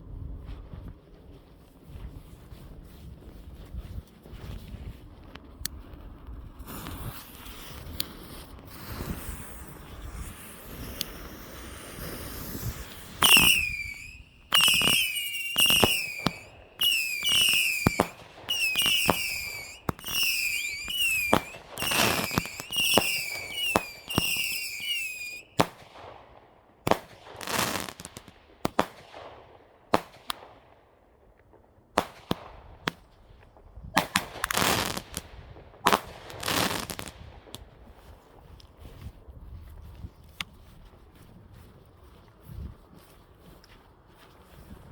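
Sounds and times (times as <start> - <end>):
firework crackle: 5.8 - 26.1, 26.9 - 29.3, 32.0 - 38.0
firework bangs and cracks: 6.1 - 30.8, 31.4 - 38.4
firework bangs with whistles: 6.6 - 26.2, 26.9 - 30.6, 33.9 - 37.7.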